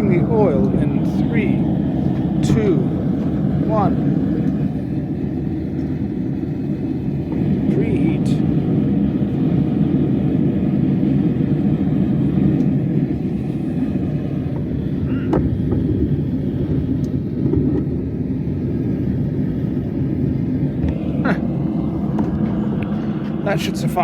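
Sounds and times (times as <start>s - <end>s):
forge rumbling: 0.0s - 24.0s.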